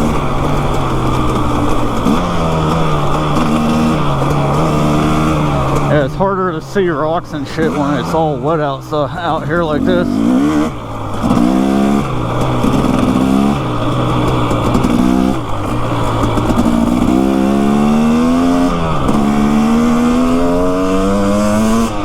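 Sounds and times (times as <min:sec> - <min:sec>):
off-road motorcycle engine revving: 0:00.0 - 0:22.0.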